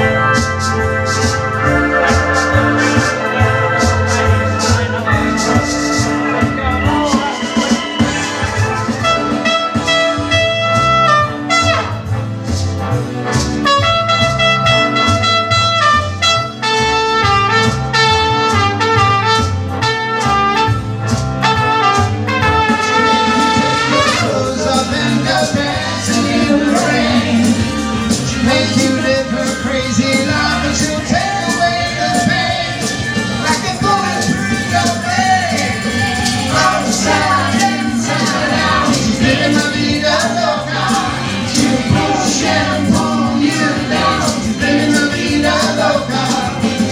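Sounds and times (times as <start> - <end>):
steady drum beat: 0.0 - 11.1, 22.0 - 46.9
bass: 0.0 - 46.9
keyboards: 0.0 - 46.9
trumpet lead: 0.0 - 46.9.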